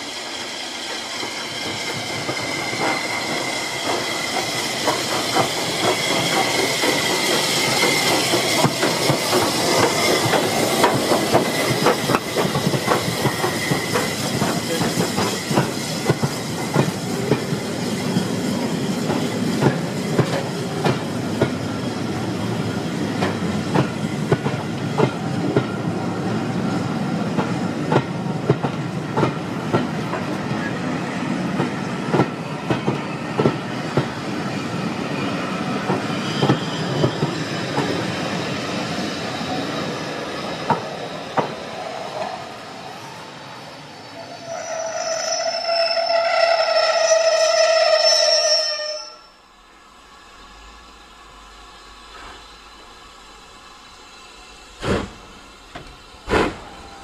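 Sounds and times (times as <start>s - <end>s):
train wheels clicking over rail joints: 0.8s - 42.3s, 54.7s - 57.0s.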